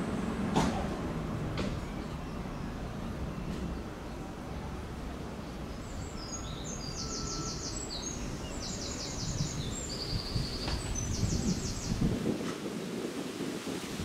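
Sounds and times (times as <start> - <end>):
songbird trilling: 5.7 - 12.0.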